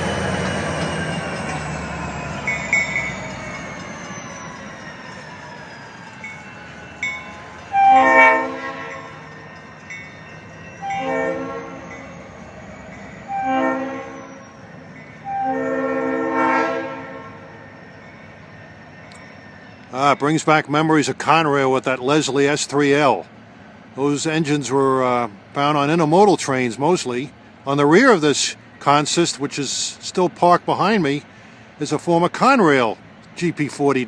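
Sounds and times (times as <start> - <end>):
locomotive air horn blasts: 7.7 - 9.2, 10.8 - 11.9, 13.3 - 14.4, 15.2 - 17.5.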